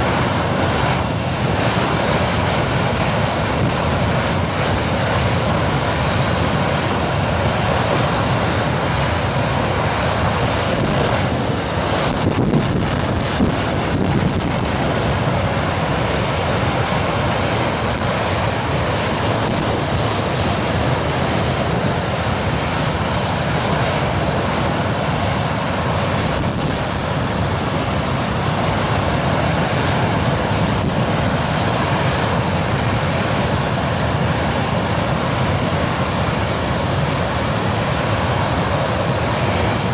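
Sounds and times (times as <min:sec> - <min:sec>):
jet engine roaring: 0:00.0 - 0:39.9.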